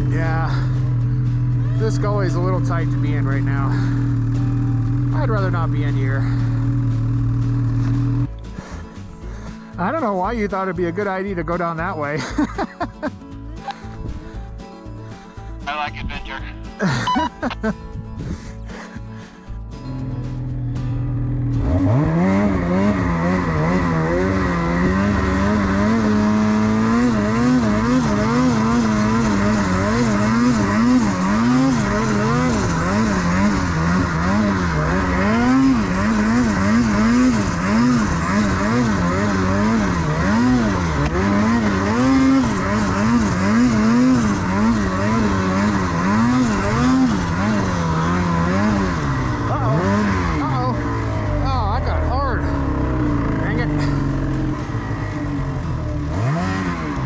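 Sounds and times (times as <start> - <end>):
snowmobile engine revving: 21.2 - 57.0.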